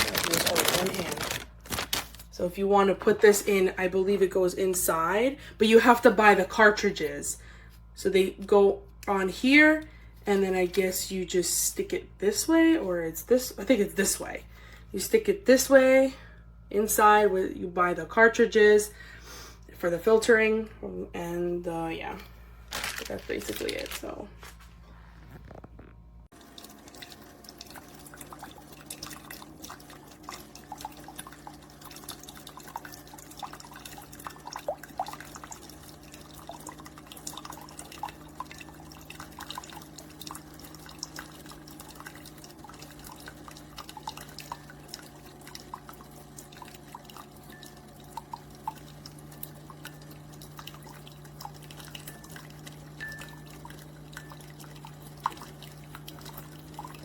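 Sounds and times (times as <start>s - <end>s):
coffee maker pump hum: 0.0s - 57.0s
coffee dripping into cup: 26.3s - 57.0s.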